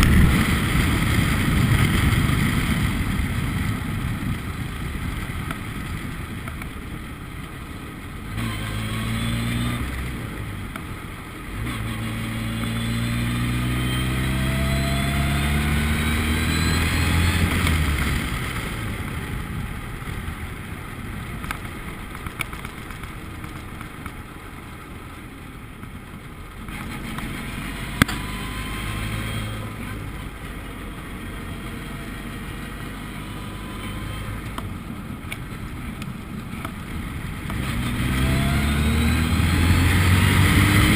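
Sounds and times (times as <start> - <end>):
wind and road noise: 0.0 - 40.9
race car engine accelerating: 11.6 - 18.4, 37.5 - 40.9.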